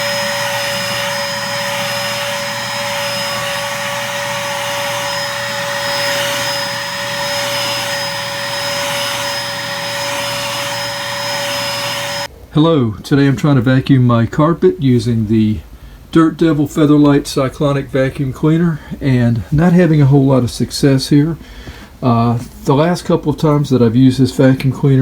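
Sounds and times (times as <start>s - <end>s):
vacuum cleaner running on carpet: 0.0s - 12.3s.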